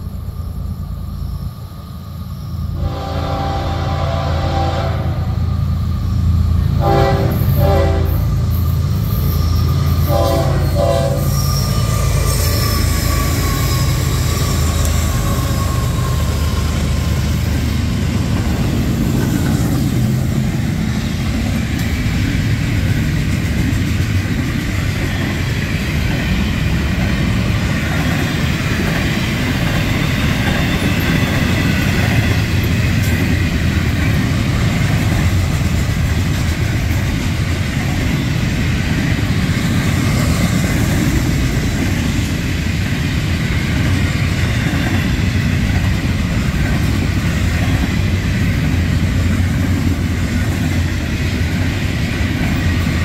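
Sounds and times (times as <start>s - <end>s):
locomotive engine rumbling: 2.6s - 53.0s
train horn: 2.8s - 5.5s, 6.8s - 8.4s, 10.0s - 11.6s
train wheels on rails clacking: 6.8s - 53.0s.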